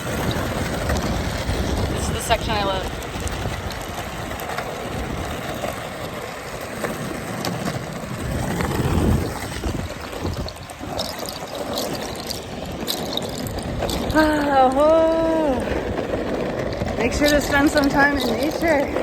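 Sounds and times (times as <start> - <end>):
skateboard wheels rolling on pavement: 0.0 - 19.0
small clicks: 9.7 - 14.8.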